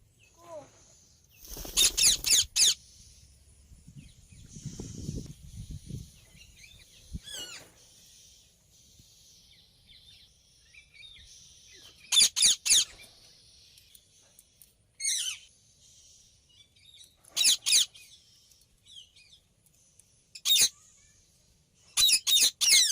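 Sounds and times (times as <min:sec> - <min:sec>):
parakeet chirping: 0:01.8 - 0:02.8
parakeet shrill screeches: 0:01.8 - 0:02.8.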